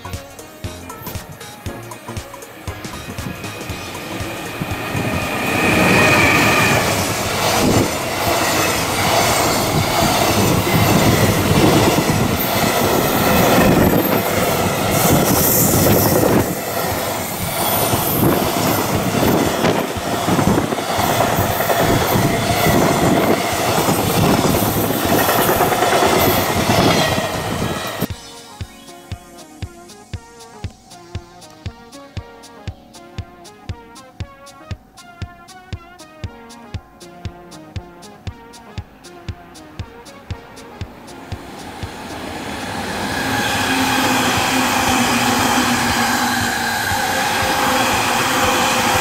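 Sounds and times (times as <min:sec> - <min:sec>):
clickety-clack over rail joints: 0:00.1 - 0:28.1, 0:39.2 - 0:49.0
steel wheels rumbling on rail: 0:01.3 - 0:28.1, 0:40.6 - 0:49.0
high wheel squeal: 0:02.6 - 0:31.5, 0:41.2 - 0:49.0.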